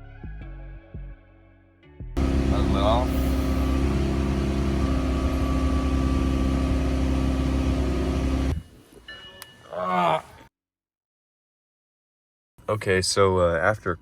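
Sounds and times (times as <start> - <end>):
car engine running steadily: 2.2 - 8.6.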